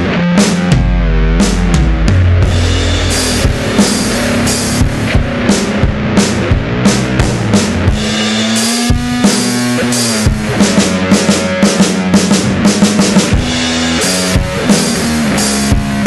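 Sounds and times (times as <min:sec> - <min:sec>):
rock drum kit beat: 0:00.0 - 0:16.0
held low bending note: 0:00.8 - 0:05.9
cymbal wash: 0:02.4 - 0:07.2.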